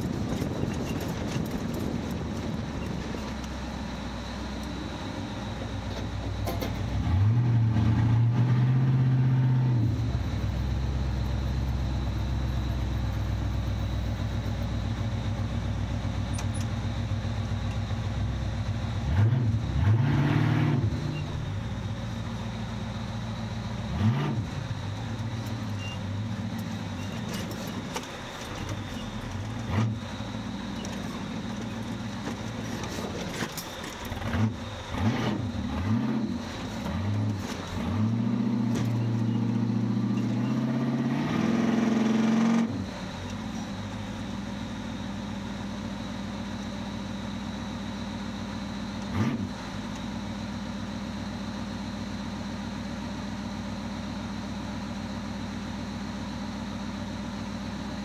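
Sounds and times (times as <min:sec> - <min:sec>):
engine revving under load: 0:06.4 - 0:11.3, 0:19.0 - 0:21.6, 0:23.8 - 0:27.8, 0:28.9 - 0:31.6, 0:32.8 - 0:43.1, 0:49.0 - 0:49.7.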